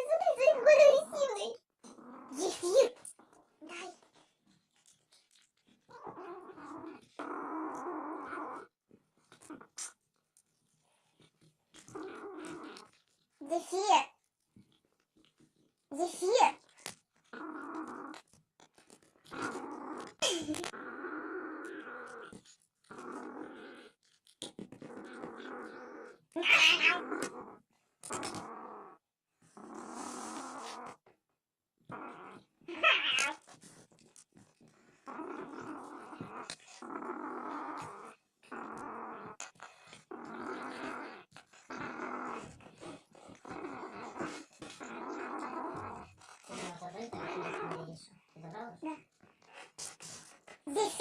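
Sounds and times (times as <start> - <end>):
cat growling angrily: 1.9 - 3.0, 5.8 - 8.7, 11.8 - 13.1, 19.2 - 29.0, 31.9 - 33.8, 34.7 - 48.0
cat yowling: 26.4 - 27.0, 32.7 - 33.4.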